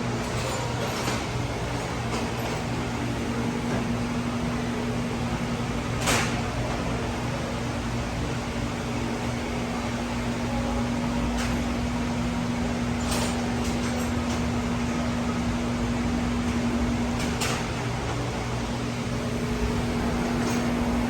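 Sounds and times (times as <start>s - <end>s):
diesel engine running: 19.0s - 21.0s.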